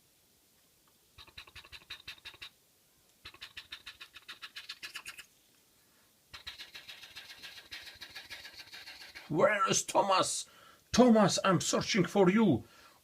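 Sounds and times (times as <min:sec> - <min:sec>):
toy helicopter clicking rapidly: 0:06.4 - 0:09.3.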